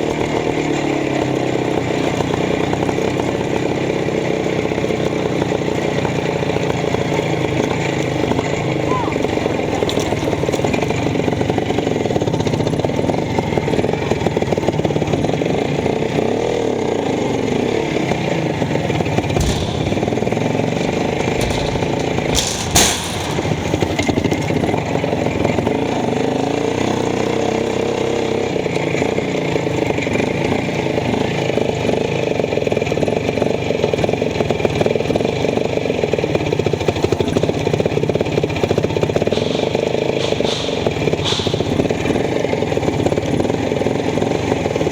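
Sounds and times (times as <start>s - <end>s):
two-stroke motorcycle engine running: 0.0s - 44.9s
sharp bang: 19.0s - 24.8s, 39.3s - 42.2s.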